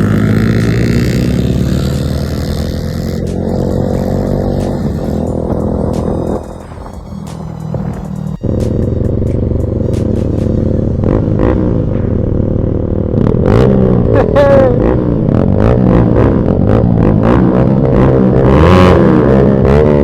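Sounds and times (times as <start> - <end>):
motorcycle engine running: 0.0 - 20.0
background music with beat: 3.0 - 11.2.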